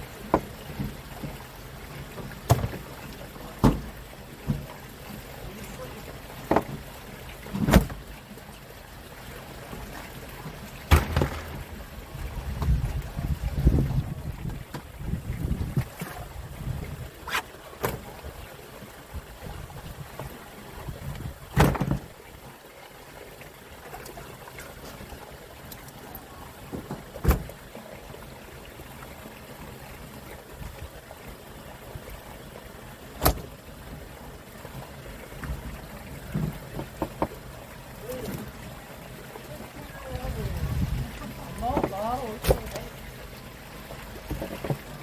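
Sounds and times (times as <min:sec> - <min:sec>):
steady boat noise: 0:00.0 - 0:45.0
sharp knocks on deck: 0:10.9 - 0:11.6.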